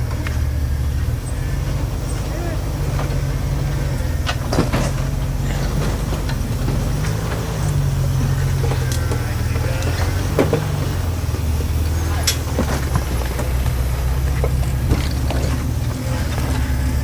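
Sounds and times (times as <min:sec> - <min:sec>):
truck engine at low revs: 0:00.0 - 0:17.0.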